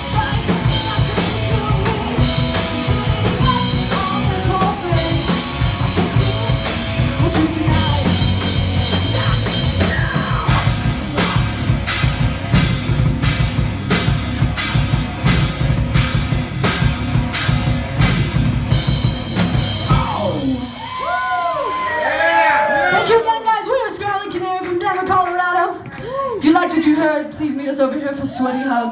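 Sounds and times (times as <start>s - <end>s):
heavy metal band playing: 0.0s - 21.0s.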